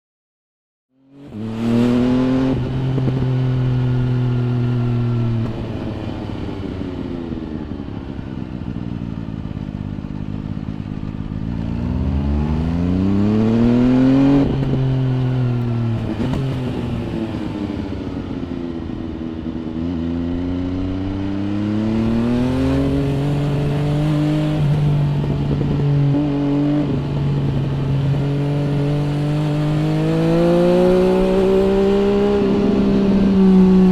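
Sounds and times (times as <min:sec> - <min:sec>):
motorcycle engine revving: 0:01.0 - 0:07.8, 0:08.6 - 0:33.9.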